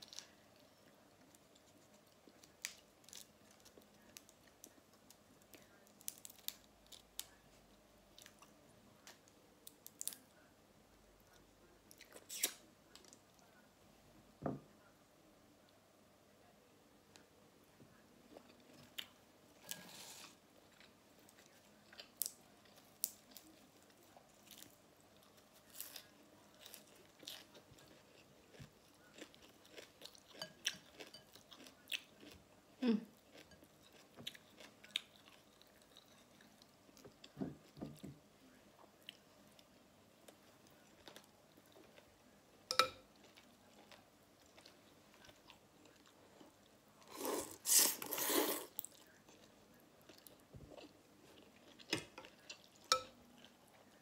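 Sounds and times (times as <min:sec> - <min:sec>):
close chewing and biting: 0:25.6 - 0:32.4.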